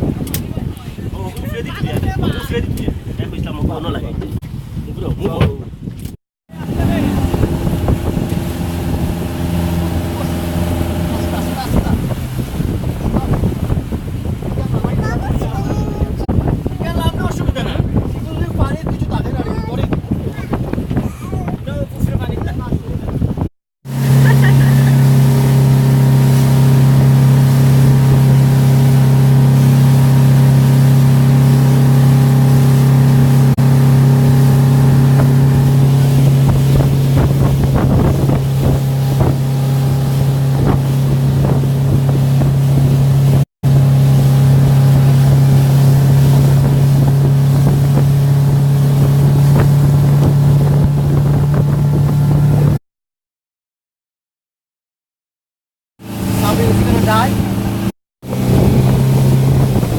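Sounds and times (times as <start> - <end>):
motorboat engine running: 0.0 - 52.8, 56.0 - 59.9
wind noise: 0.0 - 52.8, 56.1 - 59.9
rushing water: 6.5 - 20.0, 23.9 - 52.8, 56.0 - 59.9.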